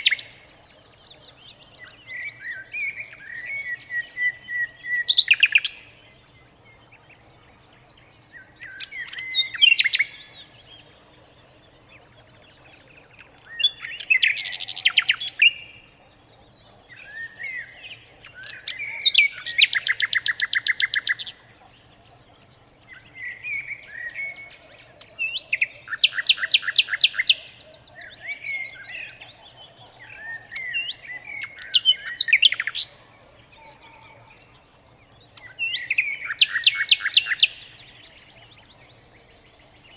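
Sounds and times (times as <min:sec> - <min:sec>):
songbird singing with trills: 0:00.0 - 0:39.9.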